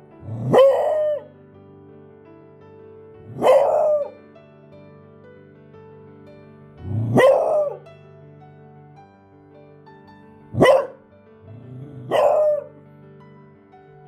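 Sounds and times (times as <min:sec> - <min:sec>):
dog barking: 0:00.2 - 0:01.3, 0:03.3 - 0:04.2, 0:07.0 - 0:07.8, 0:10.5 - 0:11.0, 0:11.6 - 0:12.7.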